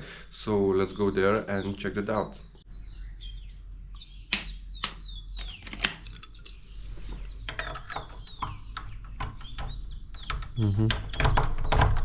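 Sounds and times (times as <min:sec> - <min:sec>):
birds chirping: 0:00.0 - 0:12.0
sharp mechanical clicks and knocks: 0:07.4 - 0:12.0.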